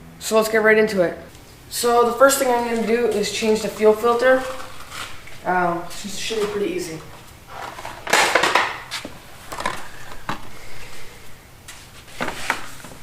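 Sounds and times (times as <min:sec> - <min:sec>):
rustling scrape: 0:02.5 - 0:08.2, 0:10.7 - 0:13.0.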